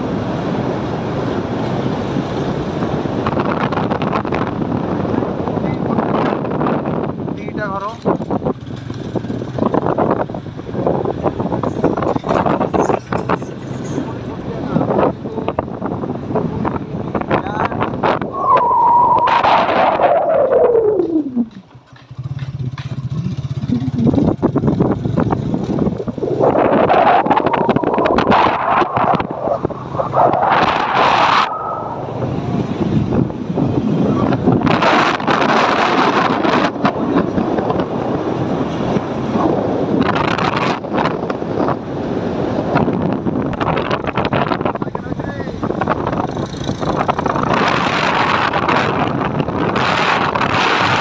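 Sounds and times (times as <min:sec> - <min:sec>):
wind buffeting microphone: 0:00.0 - 0:51.0
motorcycle engine revving: 0:07.8 - 0:17.0, 0:19.0 - 0:44.7, 0:45.5 - 0:51.0.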